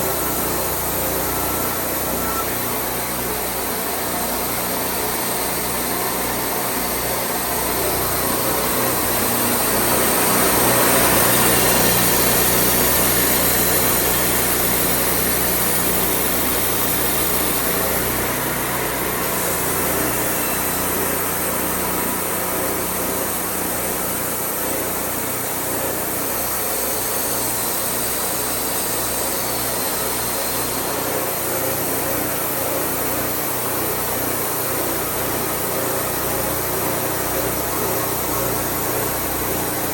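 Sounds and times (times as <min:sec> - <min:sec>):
saw blade cutting: 0:00.0 - 0:23.2
sawmill engine droning: 0:00.0 - 0:39.9.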